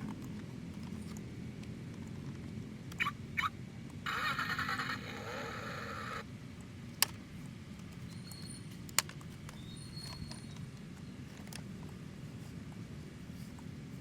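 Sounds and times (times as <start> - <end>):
buzzy simulated engine sound: 4.0 - 6.2.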